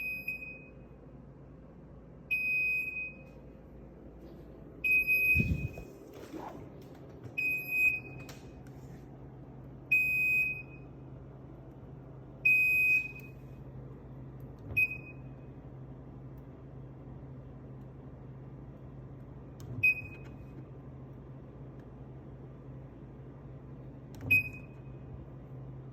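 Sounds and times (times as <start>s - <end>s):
refrigerator alarm beeping: 0.0s - 1.2s, 2.2s - 3.8s, 4.8s - 6.1s, 7.2s - 8.6s, 9.8s - 11.2s, 12.3s - 13.7s, 14.6s - 15.8s, 19.8s - 20.6s, 24.2s - 25.8s
steady low hum: 0.0s - 25.9s.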